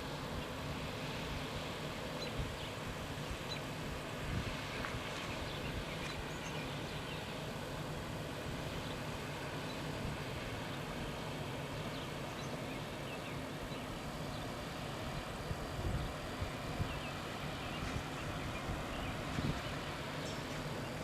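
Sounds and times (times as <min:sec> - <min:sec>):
wind rumbling on microphone: 0:02.2 - 0:07.0, 0:14.9 - 0:21.0.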